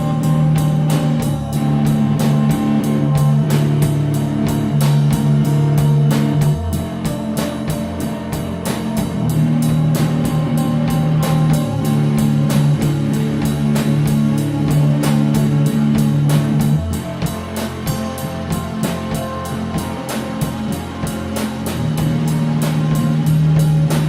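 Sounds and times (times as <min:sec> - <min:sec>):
stoner rock band playing: 0:00.0 - 0:24.0.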